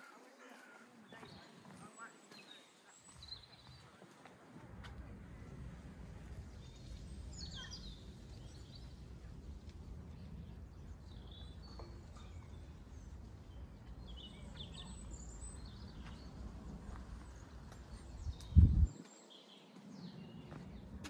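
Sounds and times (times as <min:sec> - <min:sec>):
low steady outdoor rumble: 0:04.4 - 0:18.9.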